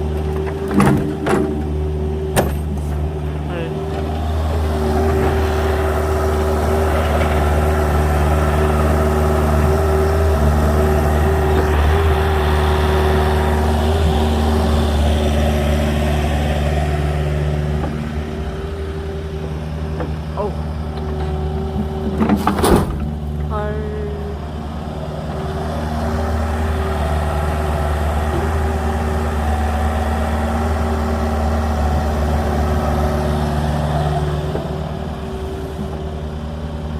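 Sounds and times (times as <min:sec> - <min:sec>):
diesel engine running under load: 0:00.0 - 0:36.9.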